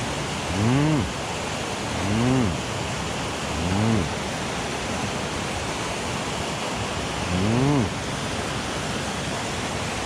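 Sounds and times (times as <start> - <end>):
mountain stream rushing: 0.0 - 10.0
man humming: 0.4 - 1.2, 1.9 - 2.6, 3.5 - 4.2, 7.2 - 8.0.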